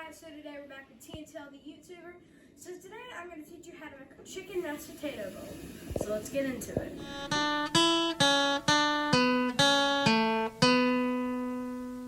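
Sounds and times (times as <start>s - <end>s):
plucked guitar chords: 7.0s - 12.0s.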